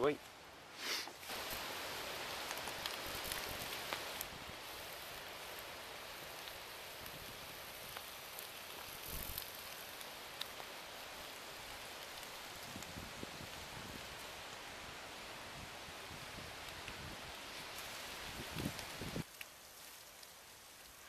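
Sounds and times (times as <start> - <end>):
faint crackles and ticks: 0.0 - 21.0
steady outdoor hiss: 0.0 - 21.0.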